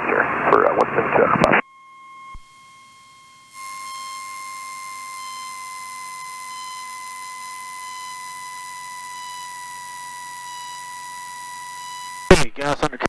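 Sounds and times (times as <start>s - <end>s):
loud radio hiss: 0.0s - 1.7s, 3.6s - 13.0s
steady electronic tone: 0.0s - 13.0s.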